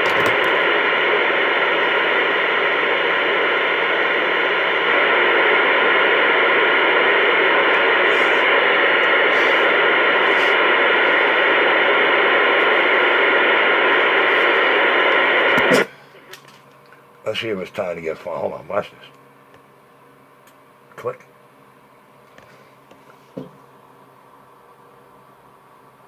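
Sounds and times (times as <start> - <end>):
radio static hiss: 0.0 - 16.5, 17.3 - 19.3.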